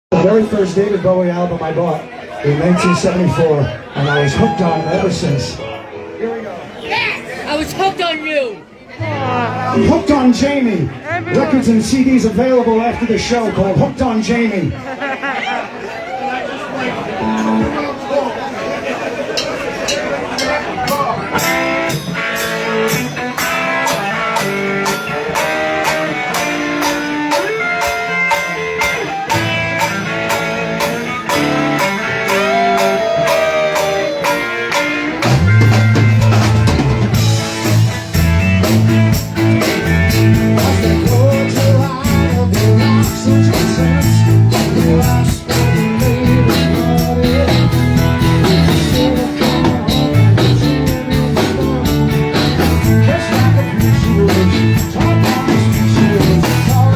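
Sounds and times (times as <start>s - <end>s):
guitar: 0.1s - 15.0s, 16.9s - 18.2s, 19.4s - 56.9s
drums: 1.9s - 5.8s, 19.1s - 56.9s
heavy bass line: 31.3s - 56.9s.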